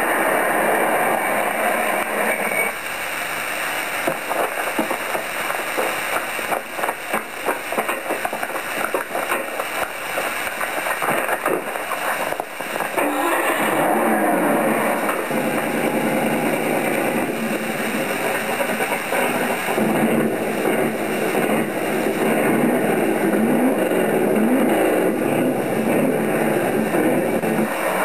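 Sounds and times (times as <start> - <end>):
sharp cracks and knocks: 4.0 - 13.2.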